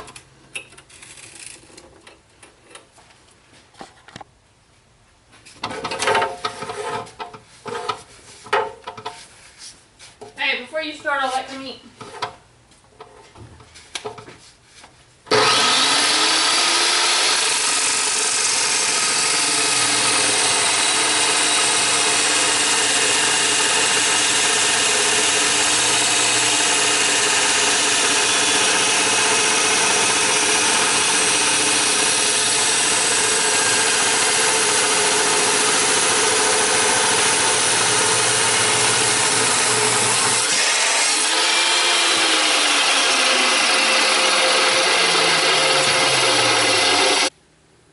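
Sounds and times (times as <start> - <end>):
power tool motor running: 15.3 - 47.3.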